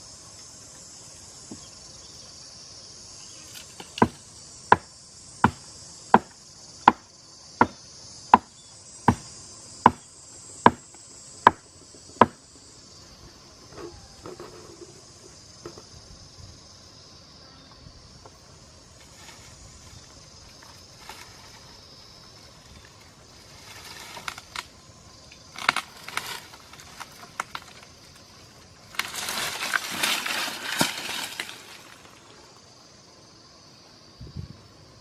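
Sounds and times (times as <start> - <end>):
high-pitched insect chorus: 0.0 - 35.0.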